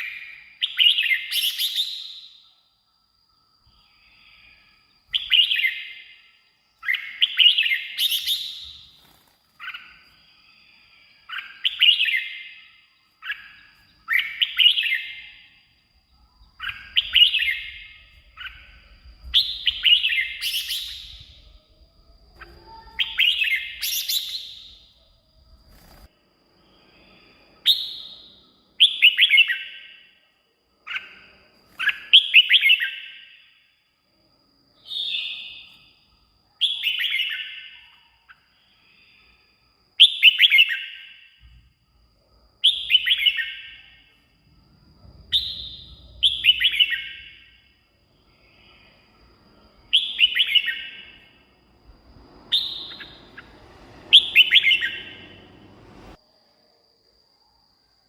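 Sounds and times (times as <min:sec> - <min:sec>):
bulbul singing: 0:52.2 - 0:56.2.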